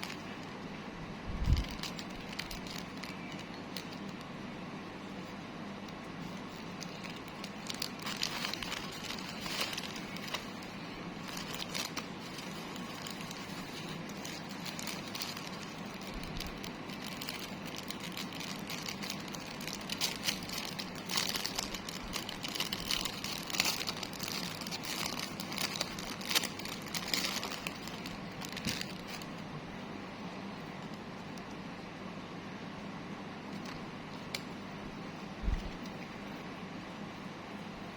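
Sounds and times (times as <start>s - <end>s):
plastic packaging crinkling: 0.0s - 0.8s, 1.4s - 29.5s.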